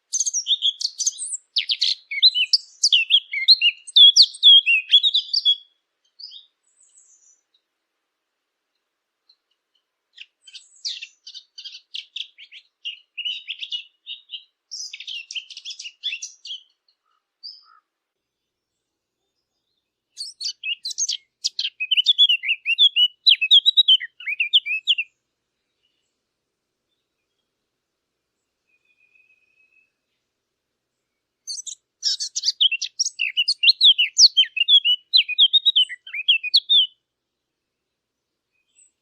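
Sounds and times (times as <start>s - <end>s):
warbler singing: 0.0s - 7.6s, 10.1s - 26.1s, 31.4s - 37.0s, 38.2s - 39.0s.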